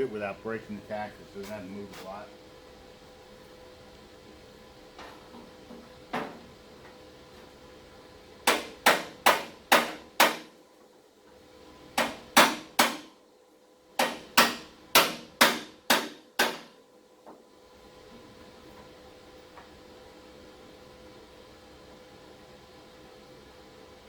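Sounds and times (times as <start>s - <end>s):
hammer tapping on sheet metal: 8.4s - 10.6s, 12.0s - 13.1s, 14.0s - 16.8s.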